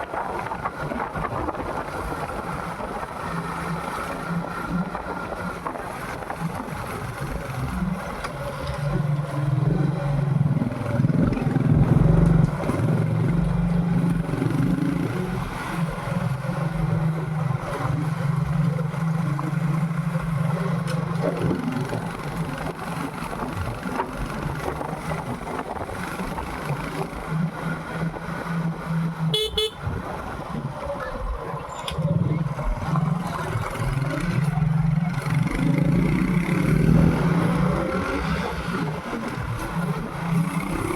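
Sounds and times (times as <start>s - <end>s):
wind rumble on microphone: 0.0s - 29.2s, 29.8s - 40.9s
motorcycle engine revving: 4.3s - 30.8s, 32.0s - 40.9s
horn toot: 29.3s - 29.9s.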